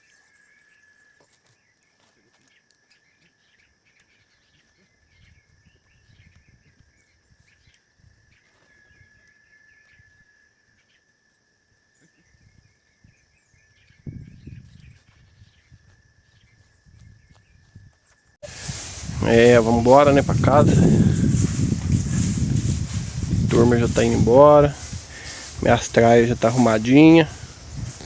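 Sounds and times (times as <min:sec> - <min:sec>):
low rumbling noise: 0:18.4 - 0:28.0.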